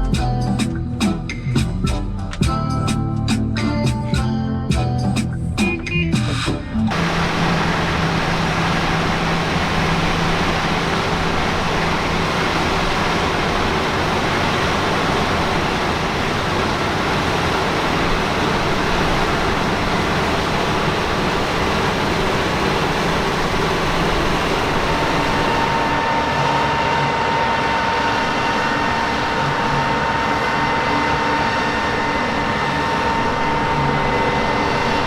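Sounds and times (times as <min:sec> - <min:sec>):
tractor engine running: 0:00.0 - 0:26.5.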